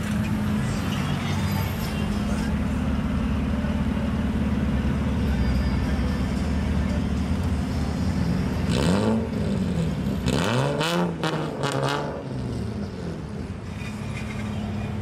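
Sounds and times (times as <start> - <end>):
car engine idling: 0.0 - 10.2
car engine revving: 7.5 - 15.0.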